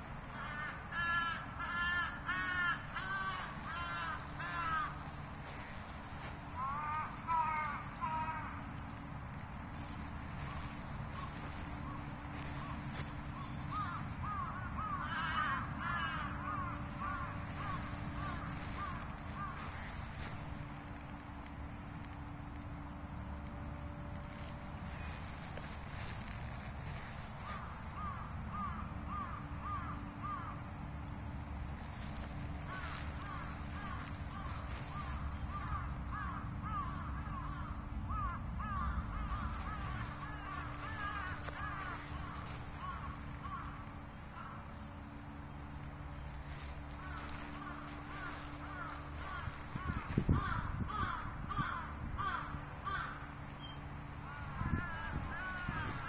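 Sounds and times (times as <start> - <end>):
birds calling: 0.0 - 56.0
low steady rumble: 0.0 - 56.0.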